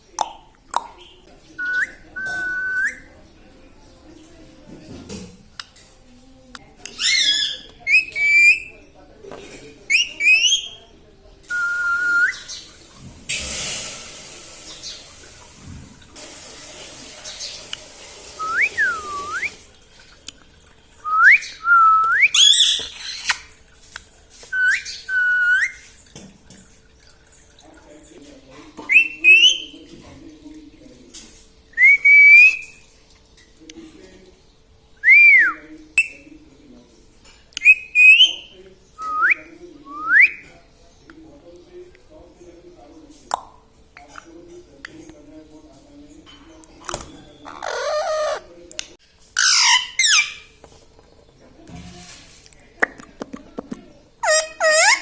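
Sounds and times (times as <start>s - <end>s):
parrot whistling: 1.6s - 3.1s, 7.0s - 8.7s, 9.9s - 10.7s, 18.4s - 19.6s, 31.8s - 32.7s, 37.6s - 40.4s
hiss: 13.3s - 15.1s.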